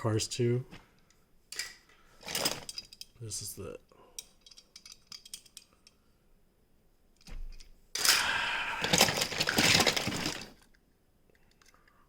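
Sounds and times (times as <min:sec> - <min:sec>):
toy cars clattering: 0:08.0 - 0:10.8.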